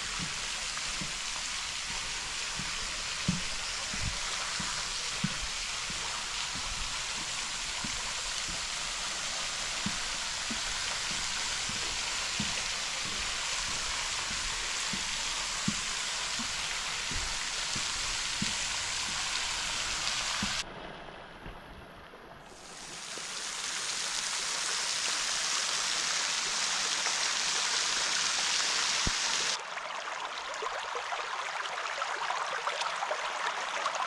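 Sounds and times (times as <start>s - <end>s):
faint low knocks: 0.0s - 20.6s
flowing water hiss: 0.0s - 20.6s, 21.2s - 29.6s.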